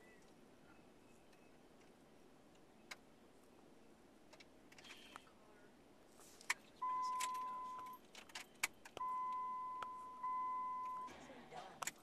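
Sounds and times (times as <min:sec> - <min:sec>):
vehicle warning chime beeps: 0:06.8 - 0:08.0, 0:09.0 - 0:11.2
keys clicking and rattling: 0:07.0 - 0:09.0.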